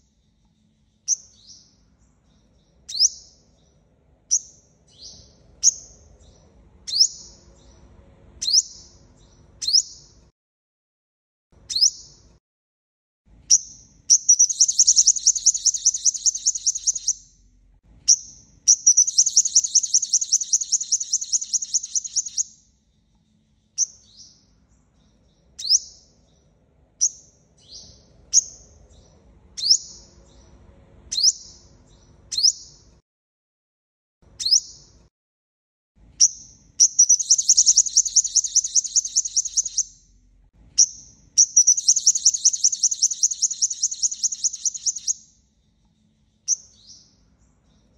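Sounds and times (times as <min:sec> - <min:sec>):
bird trilling: 0:13.5 - 0:17.3, 0:18.1 - 0:22.5, 0:36.2 - 0:40.0, 0:40.8 - 0:45.2.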